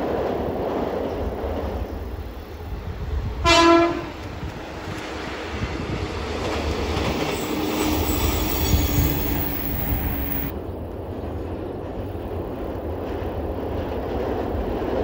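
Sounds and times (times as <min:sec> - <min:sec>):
train wheels rolling on rails: 0:00.0 - 0:15.0
train horn blast: 0:03.4 - 0:04.3.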